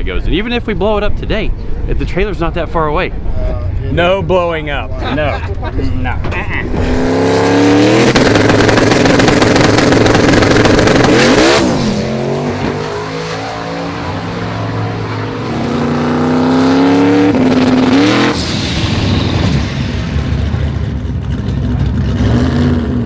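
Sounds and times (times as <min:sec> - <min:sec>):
car engine accelerating hard: 0:06.4 - 0:23.0.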